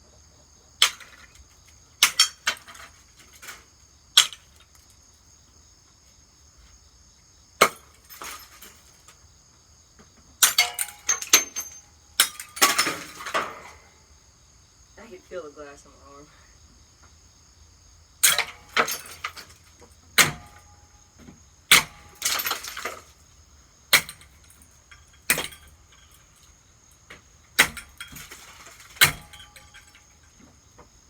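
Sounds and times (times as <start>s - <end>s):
crickets trilling: 0.0s - 31.0s
glass breaking and clinking: 0.8s - 1.4s, 2.0s - 3.6s, 4.2s - 4.6s, 7.6s - 9.2s, 10.4s - 13.9s, 18.2s - 21.0s, 21.7s - 23.3s, 23.9s - 30.3s
hammer smashing ceiling fan: 2.0s - 3.6s, 7.6s - 9.1s, 10.4s - 13.9s, 18.2s - 21.0s, 21.7s - 23.3s, 23.9s - 26.5s, 27.2s - 30.3s.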